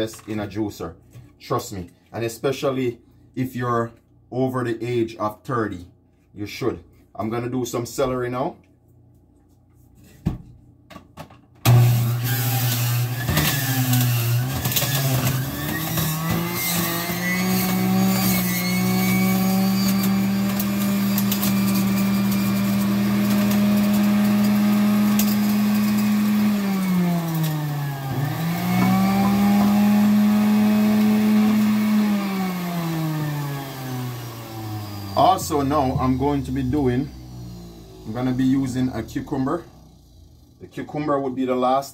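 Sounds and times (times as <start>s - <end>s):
juicer motor humming: 11.6s - 40.6s.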